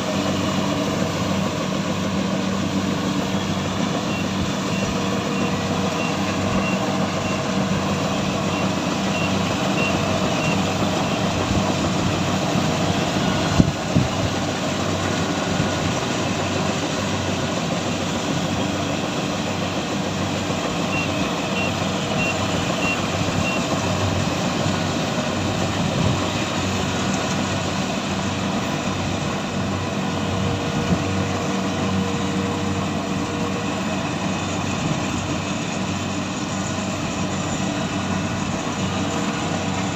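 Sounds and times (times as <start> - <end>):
heavy machine engine running: 0.0 - 39.9
high reversing alarm beeps: 2.4 - 13.6, 18.9 - 25.1.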